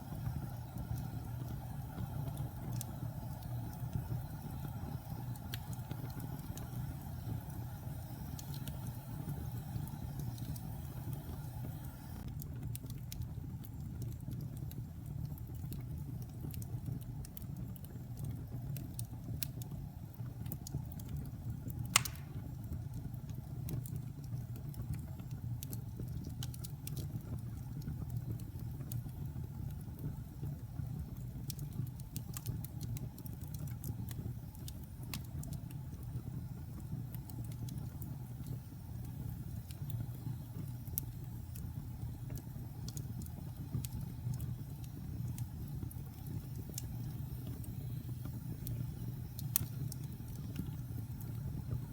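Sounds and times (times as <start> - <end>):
low rumble of fire: 0.0 - 51.9
wood fire crackling: 0.0 - 51.9
loud sharp pop: 22.0 - 22.4.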